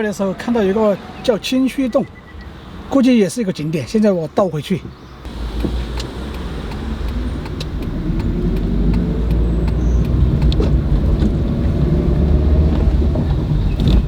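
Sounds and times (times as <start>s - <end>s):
van engine accelerating: 5.3s - 14.0s.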